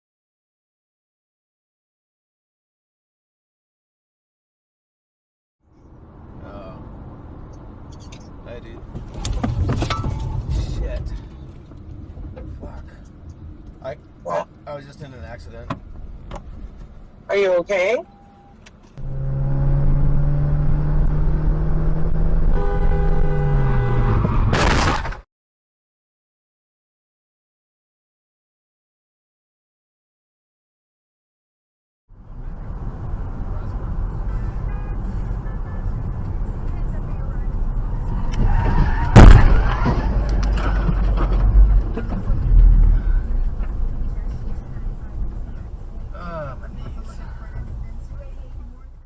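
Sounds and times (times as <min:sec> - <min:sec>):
car horn held tone: 0:22.5 - 0:24.3
second horn tone: 0:22.5 - 0:24.4
car crash impact: 0:24.2 - 0:25.2, 0:38.4 - 0:43.0
knocks and clatter: 0:38.4 - 0:42.7
low rumble: 0:39.2 - 0:46.2.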